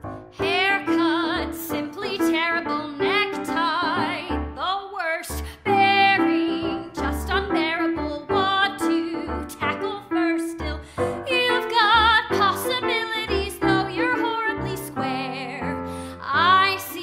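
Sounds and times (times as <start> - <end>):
instrumental accompaniment: 0.0 - 4.7, 5.3 - 17.0
woman singing show tune: 0.4 - 17.0.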